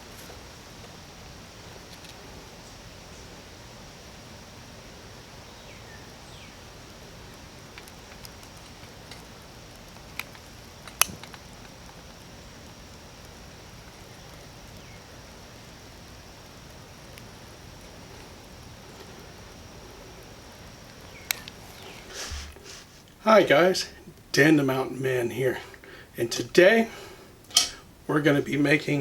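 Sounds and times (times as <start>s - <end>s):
steady background hiss: 0.0s - 29.0s
faint bird chirps: 5.4s - 6.6s, 21.0s - 22.4s
light ticks: 7.3s - 12.3s.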